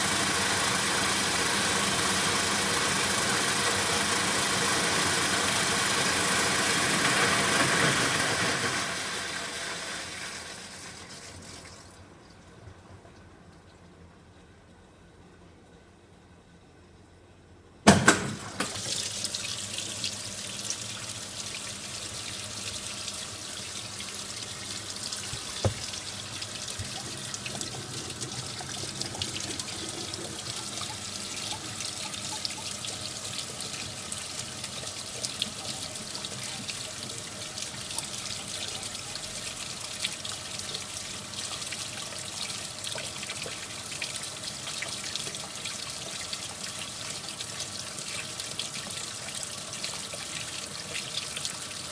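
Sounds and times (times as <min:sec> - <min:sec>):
water rushing into washing machine: 0:00.0 - 0:12.0, 0:17.9 - 0:51.9
knock: 0:25.4 - 0:25.9.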